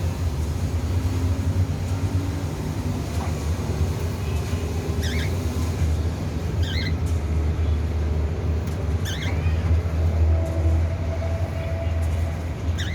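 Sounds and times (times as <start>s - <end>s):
cockatiel chirps: 5.0s - 5.3s, 6.6s - 7.0s, 9.0s - 9.4s.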